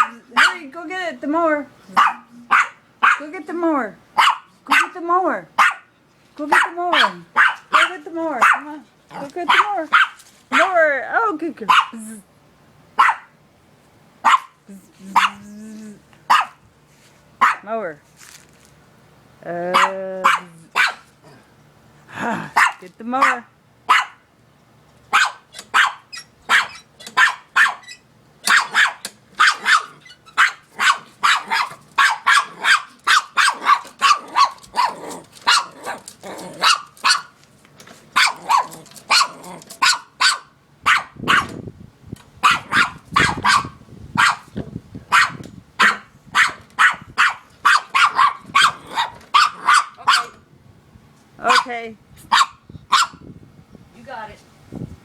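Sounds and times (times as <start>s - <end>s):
dog barking: 0.0s - 0.6s, 1.9s - 3.2s, 4.2s - 4.9s, 5.6s - 5.9s, 6.5s - 8.7s, 9.5s - 10.7s, 11.7s - 12.0s, 13.0s - 13.3s, 14.2s - 14.6s, 15.2s - 15.4s, 16.3s - 16.6s, 17.4s - 17.6s, 19.7s - 21.1s, 22.6s - 24.2s, 25.1s - 27.8s, 28.5s - 36.0s, 36.6s - 37.3s, 38.2s - 41.5s, 42.4s - 44.5s, 45.1s - 50.4s, 52.3s - 53.2s.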